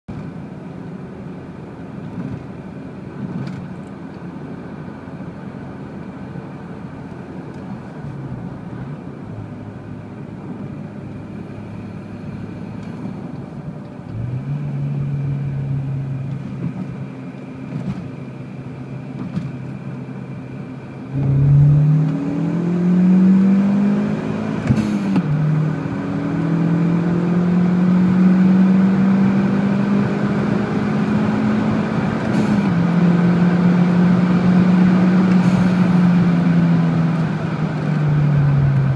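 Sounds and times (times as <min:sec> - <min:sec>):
car engine idling: 0:00.3 - 0:22.0, 0:35.7 - 0:38.9
car engine revving: 0:08.1 - 0:18.1, 0:21.0 - 0:38.9.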